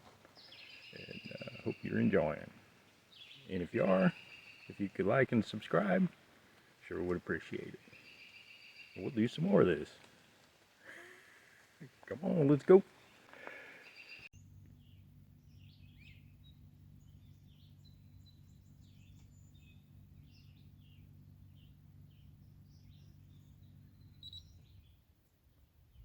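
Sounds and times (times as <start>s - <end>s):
faint bird chirps: 0.0s - 6.0s, 6.8s - 10.4s, 11.1s - 26.0s
low steady hum: 14.3s - 26.0s.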